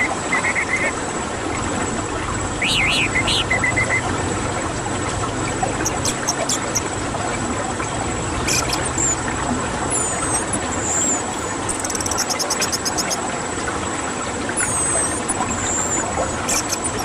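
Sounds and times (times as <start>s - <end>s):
steady background noise: 0.0s - 17.0s
faint high bird chirps: 2.6s - 4.0s, 5.8s - 6.8s, 8.5s - 9.2s, 9.9s - 13.2s, 14.6s - 17.0s
whistled glides: 8.4s - 9.3s, 9.9s - 13.2s, 14.6s - 17.0s
fast rattle of high ticks: 10.1s - 13.2s, 14.6s - 17.0s.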